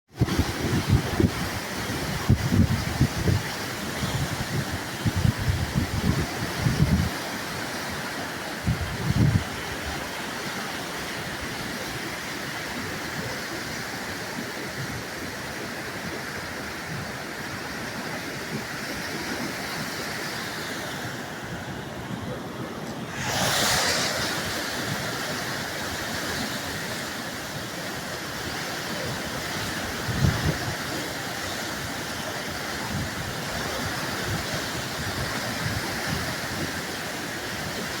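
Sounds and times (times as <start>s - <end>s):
wind buffeting microphone: 0.1s - 10.1s, 29.0s - 38.0s
floodwater rushing: 0.1s - 38.0s.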